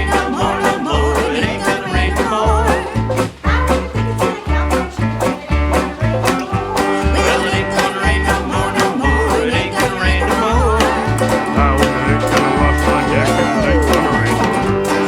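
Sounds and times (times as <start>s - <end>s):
bluegrass band playing: 0.0s - 15.0s.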